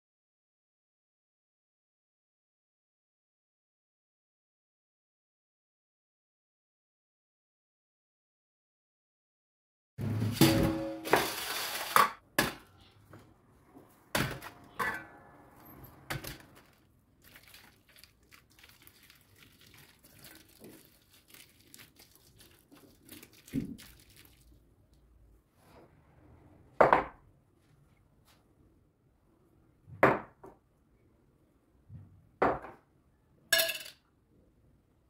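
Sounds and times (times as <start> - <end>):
kitchenware clinks and knocks: 10.1 - 12.2.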